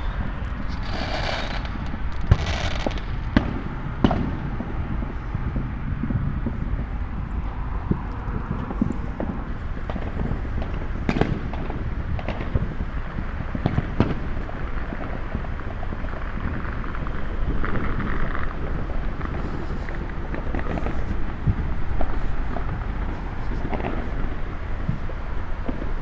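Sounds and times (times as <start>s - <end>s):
low rumble: 0.0s - 11.2s
fireworks bangs: 0.0s - 26.0s.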